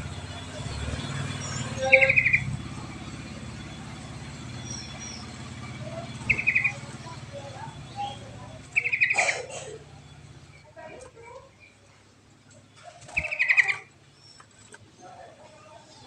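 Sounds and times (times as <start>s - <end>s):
bird chattering calls: 1.3s - 10.6s, 12.6s - 14.7s.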